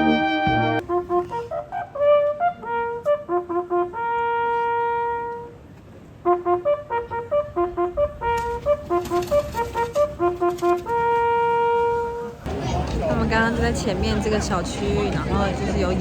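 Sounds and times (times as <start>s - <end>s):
bugle call: 0.0s - 5.6s.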